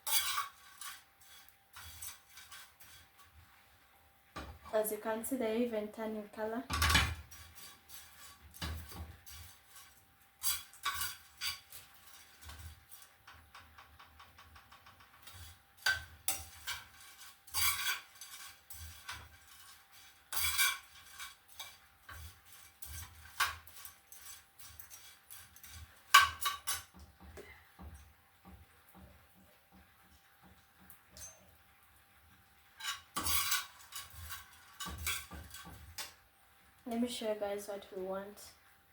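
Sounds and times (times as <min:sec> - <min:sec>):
spoon scraping a pan: 0:00.0 - 0:03.6, 0:06.7 - 0:31.6, 0:32.7 - 0:36.2
fish dry-frying: 0:00.0 - 0:38.9.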